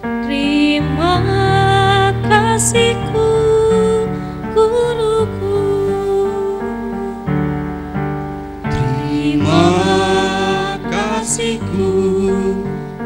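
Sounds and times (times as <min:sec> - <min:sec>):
keyboard accompaniment: 0:00.0 - 0:13.0
choir singing: 0:00.5 - 0:07.2, 0:08.7 - 0:13.0.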